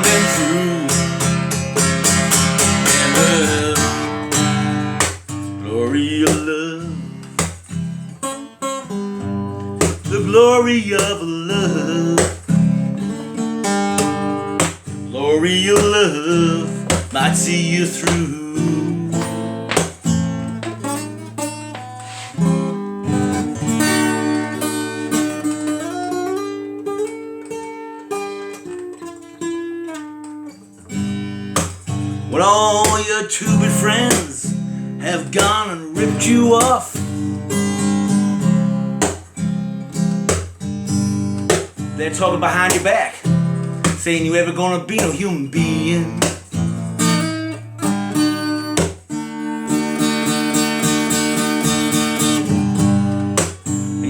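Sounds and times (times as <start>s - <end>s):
person singing: 0.0s - 1.6s, 2.8s - 4.3s, 5.6s - 7.2s, 10.0s - 12.4s, 15.1s - 19.4s, 32.3s - 37.0s, 42.0s - 46.4s
acoustic guitar: 0.0s - 54.0s.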